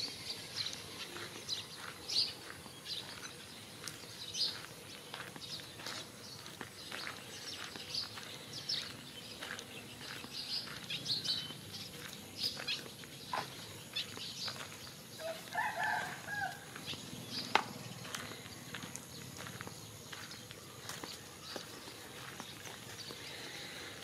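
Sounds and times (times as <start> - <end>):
footsteps on dirt road: 0.0 - 24.0
small birds chirping: 0.0 - 24.0
rooster crowing: 15.2 - 16.8.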